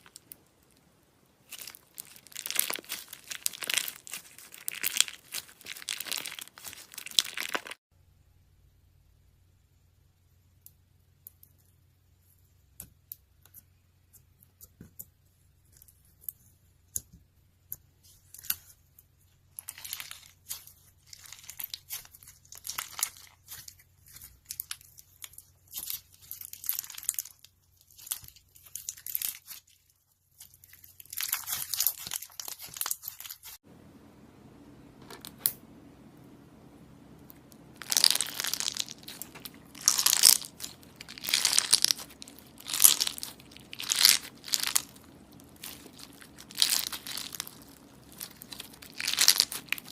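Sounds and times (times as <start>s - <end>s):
slime crackling and crinkling: 0.0s - 7.8s, 19.5s - 33.6s, 35.0s - 49.9s.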